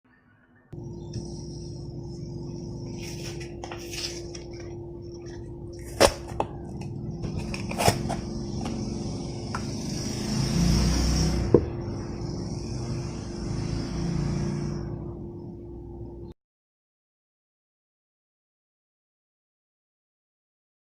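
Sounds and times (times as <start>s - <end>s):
steady hum: 0.8s - 16.4s.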